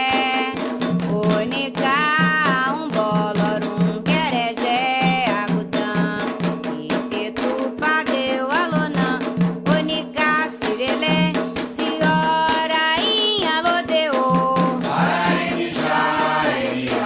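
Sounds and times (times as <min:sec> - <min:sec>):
hand drum beat: 0:00.0 - 0:17.0
people singing a chant: 0:14.8 - 0:17.0.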